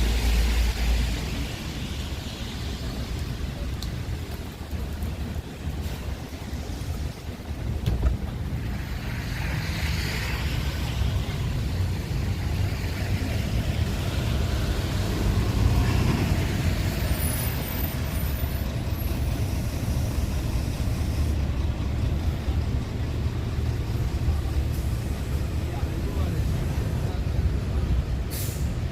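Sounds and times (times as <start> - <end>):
hiss: 28.2 - 28.9.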